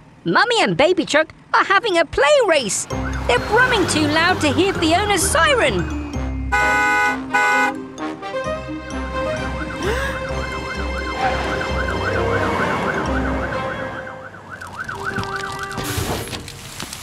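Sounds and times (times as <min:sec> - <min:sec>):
low engine rumble: 0:01.3 - 0:07.0
cartoon siren warbling: 0:02.9 - 0:05.7, 0:09.2 - 0:15.8.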